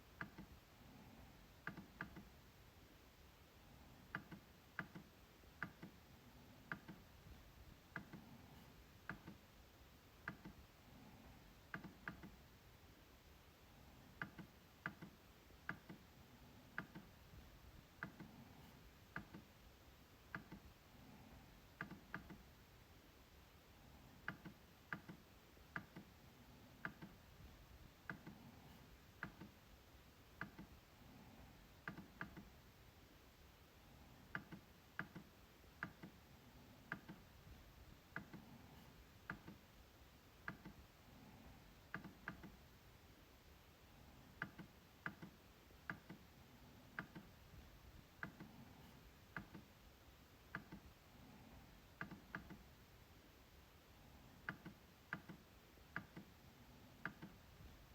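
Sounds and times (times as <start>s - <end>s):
trackpad clicks: 4.1s - 6.0s, 6.7s - 7.1s, 11.7s - 12.4s, 14.2s - 16.1s, 16.7s - 17.2s, 21.8s - 22.4s, 28.0s - 29.6s, 30.4s - 30.8s, 34.3s - 36.2s, 40.4s - 40.8s, 41.9s - 42.6s, 44.3s - 46.2s, 47.0s - 47.4s, 50.4s - 50.9s, 52.0s - 52.6s, 54.4s - 56.3s, 57.0s - 57.4s.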